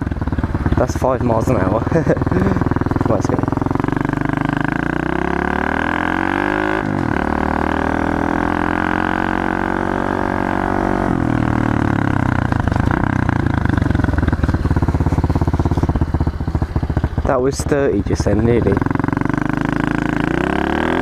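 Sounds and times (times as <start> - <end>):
motorbike engine accelerating: 0.0 - 21.0.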